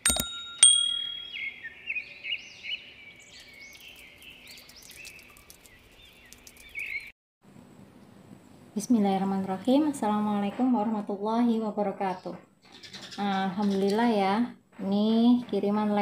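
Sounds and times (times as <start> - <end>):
bright ding: 0.0 - 1.6
small birds chirping: 0.8 - 7.1, 12.1 - 14.3.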